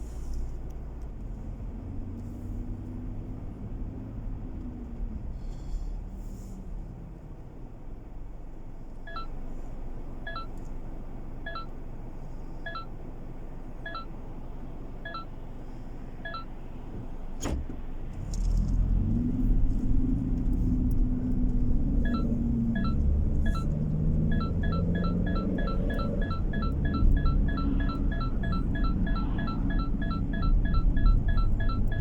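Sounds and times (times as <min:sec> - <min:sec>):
car engine and road rumble: 0:00.0 - 0:32.0
high ticking in car cabin: 0:09.1 - 0:09.4, 0:10.2 - 0:10.8, 0:11.4 - 0:11.8, 0:12.7 - 0:12.9, 0:13.7 - 0:14.2, 0:15.0 - 0:15.5, 0:16.2 - 0:17.2, 0:21.2 - 0:32.0.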